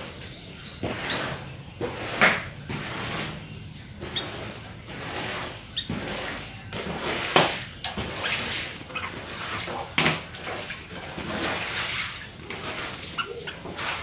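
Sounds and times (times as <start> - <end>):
bird harsh chirps: 11.8 - 14.0.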